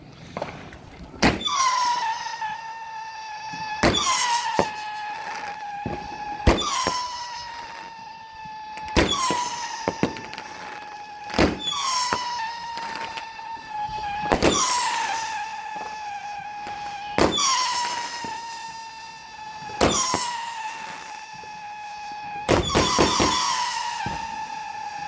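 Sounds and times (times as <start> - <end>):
firework bangs: 0.2 - 25.0
firework whistle: 0.2 - 25.0
small firework cracks: 0.2 - 25.0.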